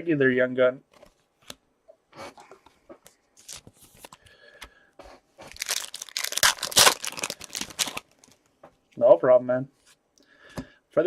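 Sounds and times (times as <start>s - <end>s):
foil wrapper tearing and crinkling: 5.5s - 8.4s.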